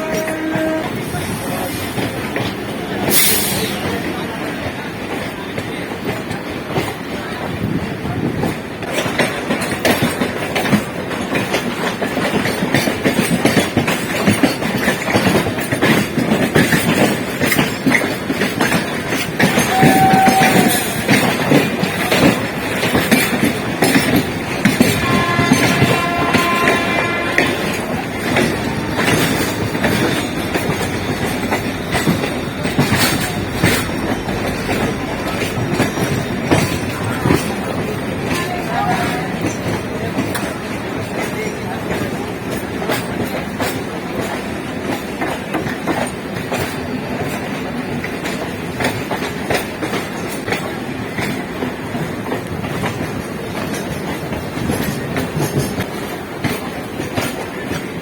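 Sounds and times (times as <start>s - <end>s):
train horn: 0.0s - 1.1s, 19.5s - 21.2s, 24.8s - 28.2s
train wheels clattering on rails: 0.0s - 58.0s.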